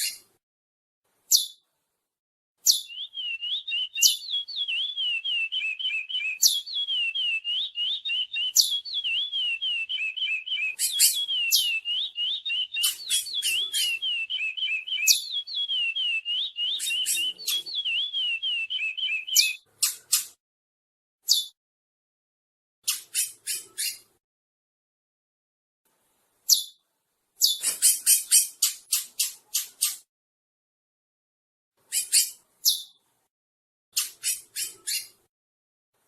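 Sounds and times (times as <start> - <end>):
finch singing warbling song: 1.3 - 1.6, 2.6 - 20.4, 22.8 - 24.2, 34.0 - 35.2.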